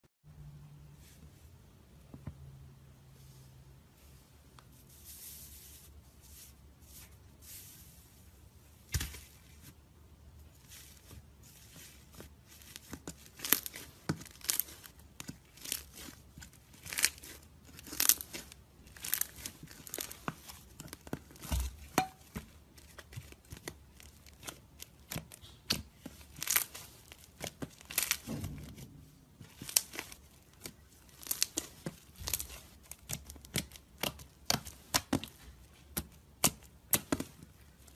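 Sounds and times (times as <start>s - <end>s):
dried slime crackling: 10.6s - 37.9s.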